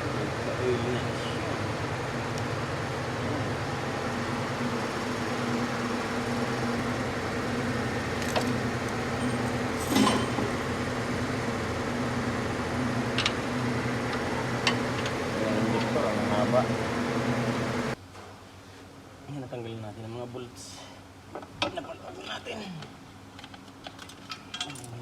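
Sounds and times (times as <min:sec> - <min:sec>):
workshop machine hum: 0:00.0 - 0:18.0
tools clattering: 0:08.2 - 0:10.8, 0:23.9 - 0:25.0.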